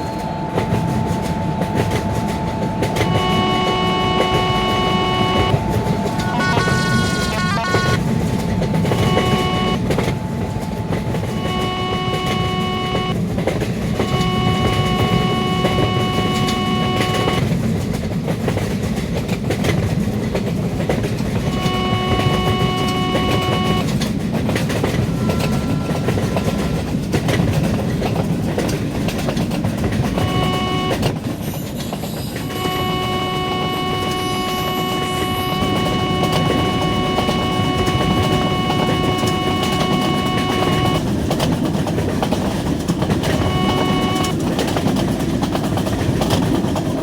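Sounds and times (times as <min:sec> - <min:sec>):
steady pitched tone: 0:00.0 - 0:13.2, 0:14.0 - 0:17.4, 0:21.4 - 0:23.9, 0:30.2 - 0:31.0, 0:32.4 - 0:41.0, 0:43.3 - 0:44.3
train wheels clattering on rail: 0:17.4 - 0:21.4, 0:23.8 - 0:30.2, 0:41.0 - 0:43.4, 0:44.3 - 0:47.0
train passing at high speed: 0:17.4 - 0:21.5.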